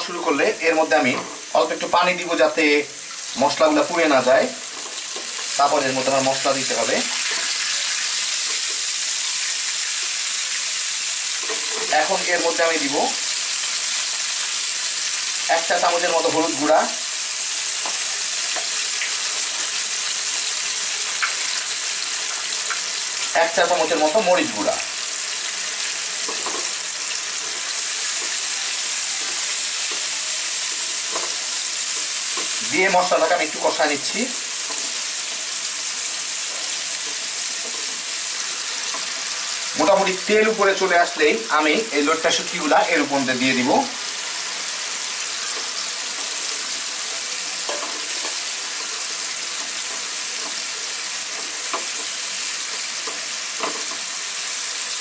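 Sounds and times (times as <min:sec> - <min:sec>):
oil sizzling in a frying pan: 0:00.0 - 0:55.0
spoon stirring in a pan: 0:11.3 - 0:12.0, 0:17.8 - 0:23.3, 0:25.3 - 0:32.7, 0:34.4 - 0:35.5, 0:36.4 - 0:39.6, 0:45.0 - 0:54.1.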